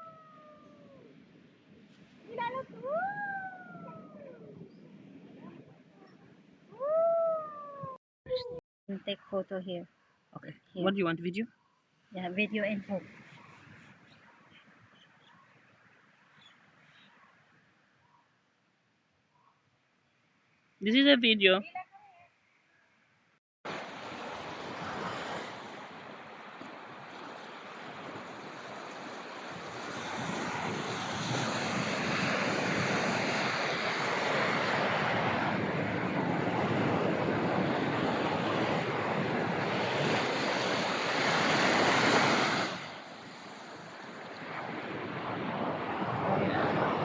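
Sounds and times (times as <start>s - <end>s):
wind on microphone: 1.8s - 8.6s, 23.8s - 47.0s
ocean surf washing in: 2.1s - 4.6s, 23.7s - 47.0s.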